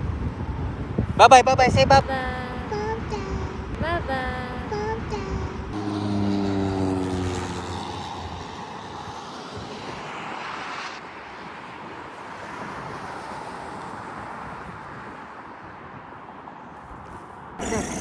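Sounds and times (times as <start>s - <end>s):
airplane engine roar overhead: 0.0s - 15.3s.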